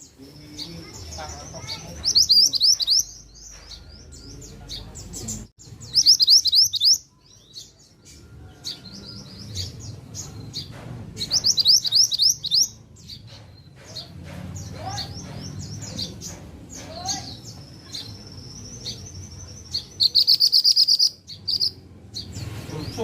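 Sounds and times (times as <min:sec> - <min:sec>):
bird singing high rising notes: 0:00.0 - 0:10.4, 0:17.0 - 0:23.0
bird chirps: 0:00.0 - 0:23.0.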